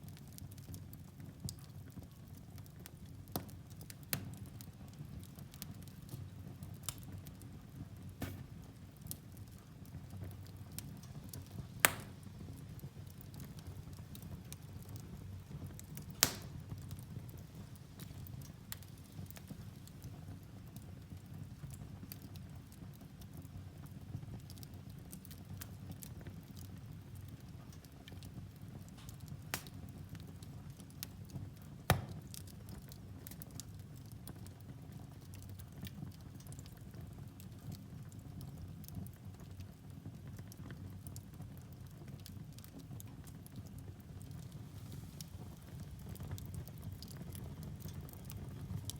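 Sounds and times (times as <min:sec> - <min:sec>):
low rumble of flames: 0:00.0 - 0:48.9
loud sharp pops of fire: 0:03.3 - 0:20.2, 0:28.2 - 0:33.5, 0:44.2 - 0:48.9
logs crackling: 0:08.1 - 0:09.2, 0:10.5 - 0:15.0, 0:15.7 - 0:19.9, 0:28.9 - 0:29.8, 0:31.9 - 0:32.4.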